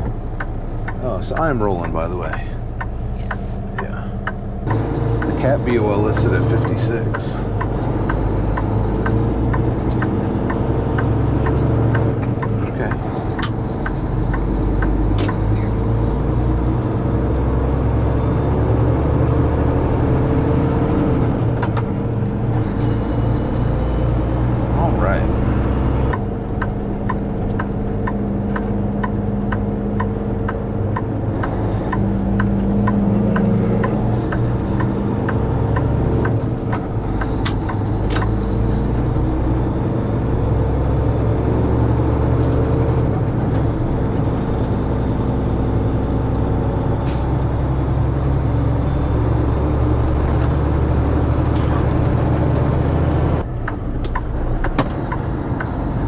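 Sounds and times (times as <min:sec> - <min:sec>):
diesel truck engine running: 0:00.0 - 0:56.0
light regular ticking: 0:26.1 - 0:40.0.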